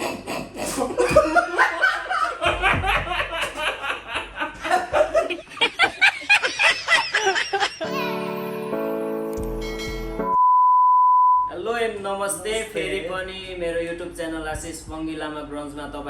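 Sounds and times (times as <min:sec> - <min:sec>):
people laughing: 0:00.0 - 0:07.9.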